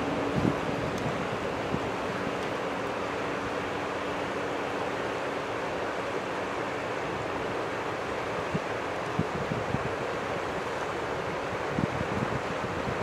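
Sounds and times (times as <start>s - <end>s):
wind on microphone: 0.0s - 2.4s, 8.4s - 13.0s
distant jet engines rushing: 0.0s - 13.0s.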